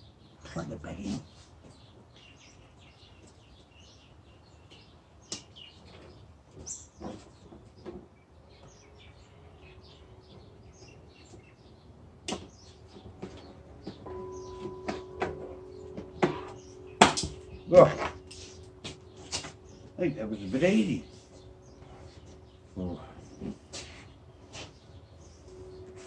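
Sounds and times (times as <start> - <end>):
birds chirping faintly: 0.0 - 26.0.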